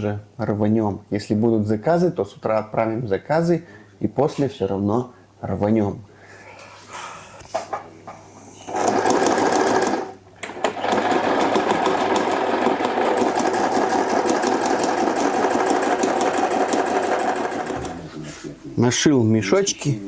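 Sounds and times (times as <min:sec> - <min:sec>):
sewing machine stitching: 0:08.7 - 0:18.1.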